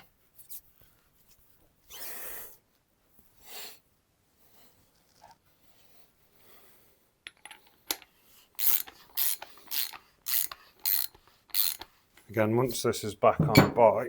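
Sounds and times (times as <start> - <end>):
ratchet wrench clicks: 8.6 - 11.9
ratchet wrench ratcheting: 8.6 - 11.9.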